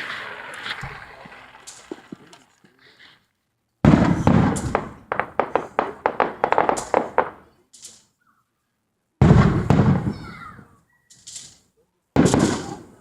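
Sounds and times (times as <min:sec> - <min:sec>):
fireworks crackling pops: 0:00.0 - 0:08.2, 0:09.2 - 0:10.4, 0:11.1 - 0:13.0
loud firework bang: 0:03.8 - 0:07.4, 0:09.2 - 0:10.3, 0:12.2 - 0:13.0.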